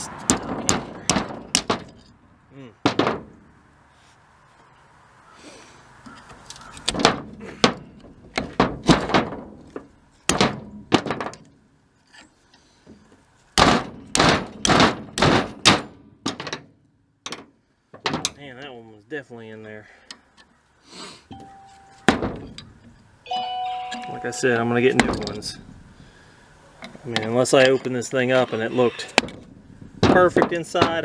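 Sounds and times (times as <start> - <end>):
sharp metal knocks: 0.2 - 2.2, 2.8 - 3.5, 6.7 - 11.5, 13.6 - 18.4, 21.3 - 22.8, 24.8 - 25.6, 29.2 - 31.0.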